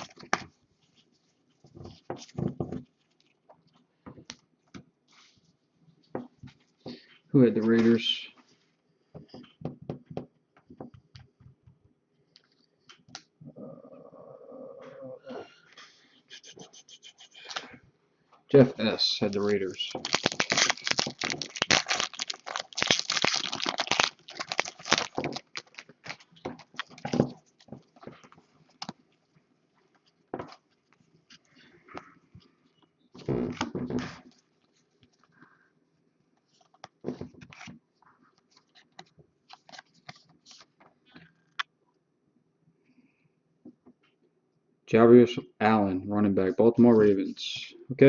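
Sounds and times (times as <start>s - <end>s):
plastic wrapper crinkling: 0.0s - 1.0s, 19.0s - 29.0s.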